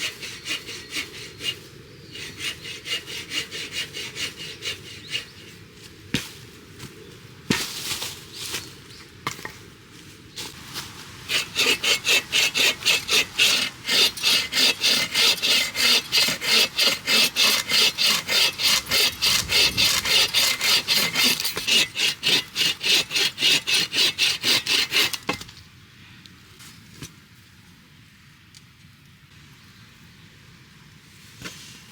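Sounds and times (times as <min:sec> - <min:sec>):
hand saw cutting wood: 0:00.0 - 0:05.5, 0:11.2 - 0:25.5.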